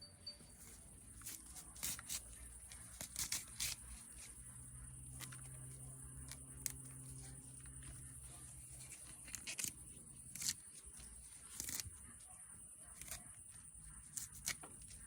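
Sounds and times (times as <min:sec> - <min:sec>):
leaves tearing and rustling: 0:01.0 - 0:12.3, 0:12.9 - 0:13.4, 0:14.0 - 0:15.0
mint stems snapping: 0:02.8 - 0:03.8, 0:09.2 - 0:11.9.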